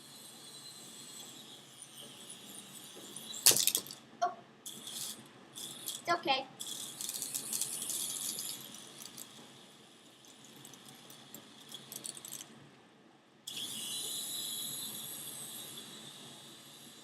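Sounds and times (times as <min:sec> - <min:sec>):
toy helicopter rotor whining: 0:00.0 - 0:04.0, 0:04.6 - 0:12.5, 0:13.5 - 0:17.0.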